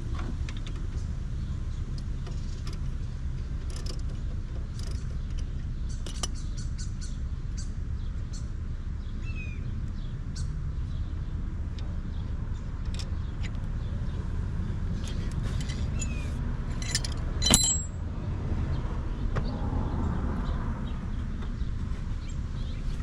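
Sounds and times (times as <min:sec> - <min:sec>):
hand tools clinking on metal: 0:15.1 - 0:18.0.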